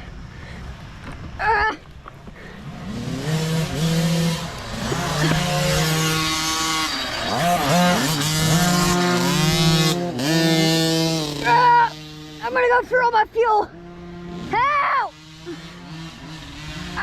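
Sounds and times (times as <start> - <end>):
small engine revving: 2.2 - 12.9, 13.6 - 17.0.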